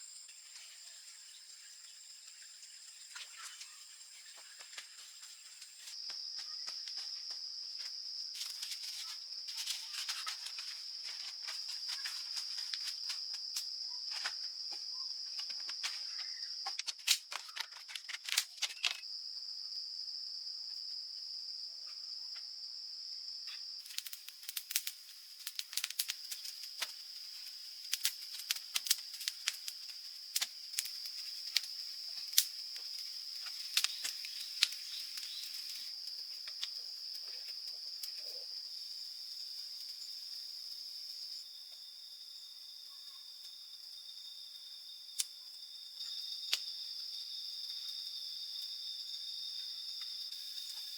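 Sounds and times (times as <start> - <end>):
insects buzzing: 0.0 - 50.9
sharp clicks and crackles: 16.7 - 19.1, 23.8 - 35.8.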